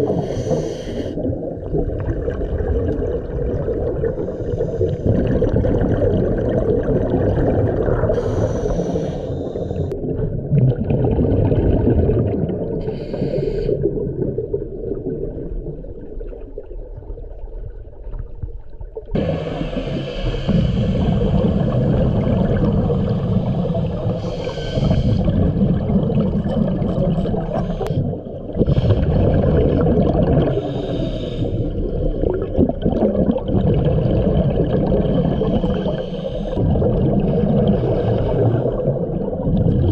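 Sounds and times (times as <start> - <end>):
diver breathing through regulator: 0.0 - 1.3, 4.2 - 5.3, 8.1 - 10.0, 12.8 - 13.9, 19.2 - 21.8, 22.8 - 25.6, 27.2 - 29.4, 30.4 - 32.0, 35.2 - 36.6, 37.6 - 38.9
exhaled bubbles rushing: 0.0 - 8.8, 9.5 - 12.9, 13.7 - 39.9.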